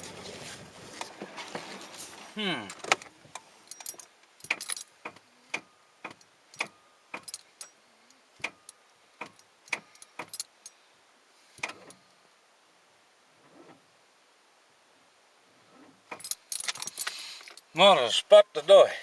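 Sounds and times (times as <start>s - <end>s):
keys jangling: 3.7s - 4.9s, 16.2s - 17.7s.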